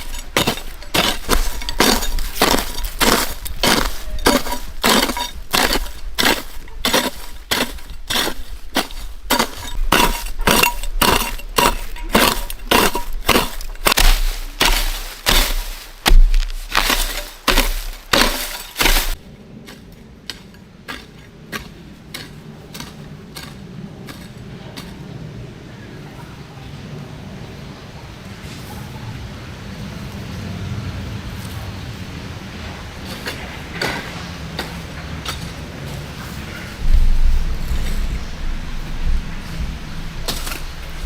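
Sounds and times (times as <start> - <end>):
scattered knocks: 0.0 - 19.2.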